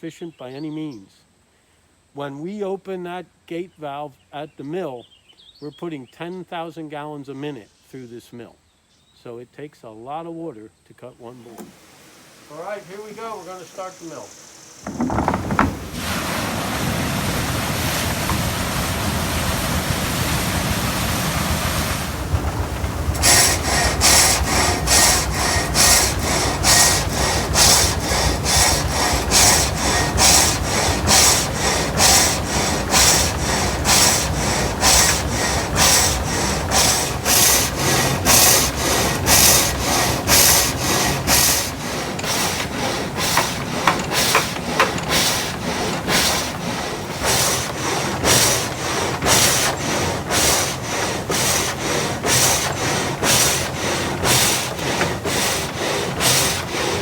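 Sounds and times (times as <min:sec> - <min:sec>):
water wheel and gearing rumble: 0:11.3 - 0:57.0
saw rasping through log: 0:12.5 - 0:57.0.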